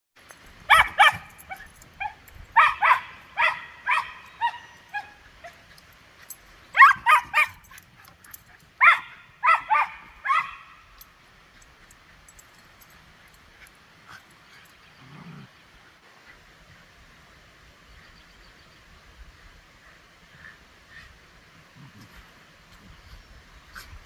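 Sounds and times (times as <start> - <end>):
small dog barking: 0.7 - 5.6, 6.7 - 7.8, 8.8 - 10.8.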